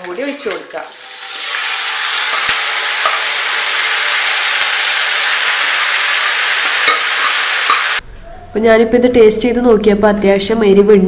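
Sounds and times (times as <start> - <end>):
liquid sizzling in hot oil: 0.0 - 8.0.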